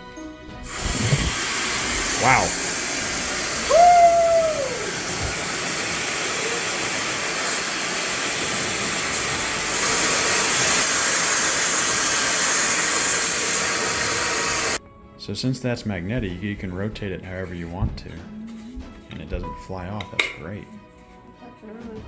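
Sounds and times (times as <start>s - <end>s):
hair dryer blowing: 0.7s - 14.8s
falling tone: 0.8s - 5.4s.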